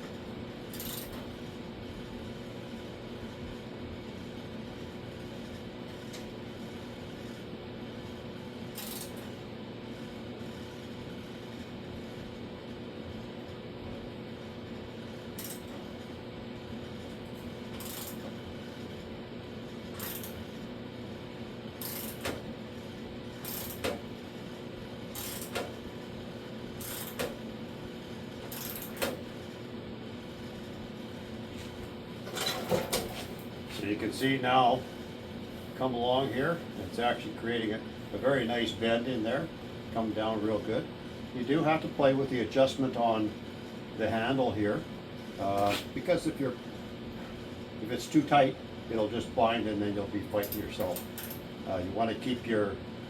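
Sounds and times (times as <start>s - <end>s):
background hum: 0.0s - 52.9s
ratchet click: 0.7s - 1.1s.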